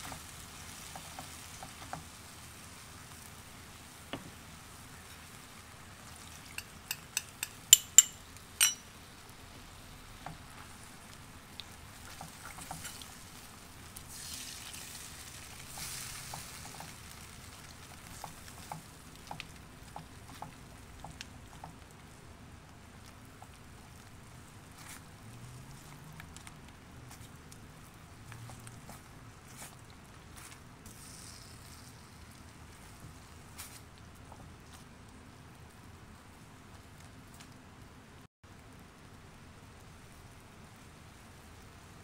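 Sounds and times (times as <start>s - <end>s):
spatula stirring and scraping: 0.0s - 8.9s, 10.2s - 22.2s, 27.0s - 34.9s
food sizzling in a wok: 0.0s - 21.6s, 30.8s - 33.8s
sharp taps against pan: 6.6s - 8.8s.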